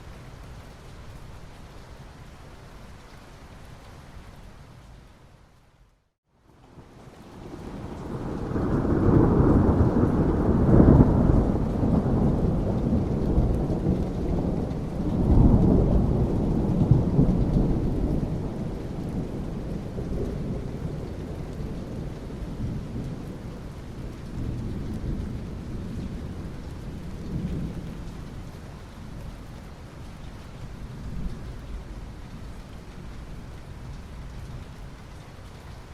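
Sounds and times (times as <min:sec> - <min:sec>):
steady rain: 0:00.0 - 0:35.9
thunder rumbling: 0:07.4 - 0:28.6.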